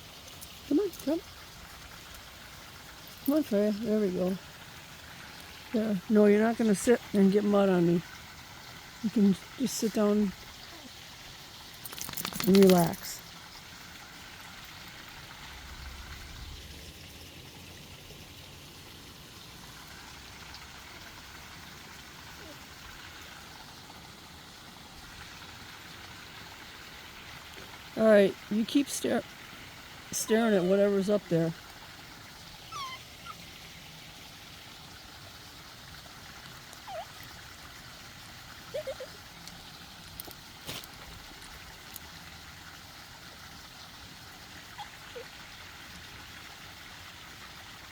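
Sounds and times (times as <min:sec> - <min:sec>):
stream flowing: 0:00.0 - 0:47.9
faint low rumble: 0:15.2 - 0:17.1
faint squeak: 0:32.7 - 0:33.4.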